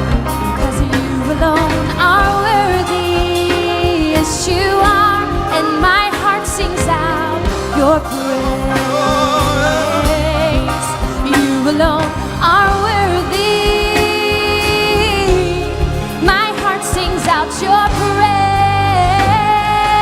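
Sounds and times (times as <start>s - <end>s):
sustained accompaniment: 2.7s - 19.4s.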